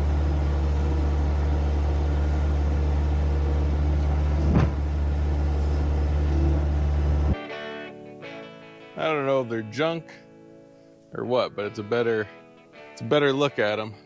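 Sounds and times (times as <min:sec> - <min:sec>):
vehicle engine running: 0:00.0 - 0:07.4
thump: 0:04.3 - 0:04.9.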